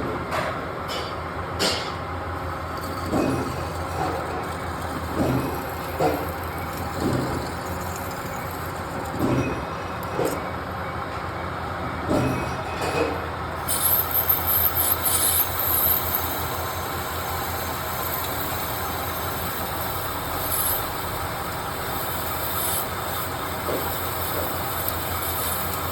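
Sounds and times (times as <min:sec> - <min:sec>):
lathe humming: 0:02.4 - 0:10.8, 0:13.4 - 0:25.9
tool squealing cutting brass: 0:13.6 - 0:25.9.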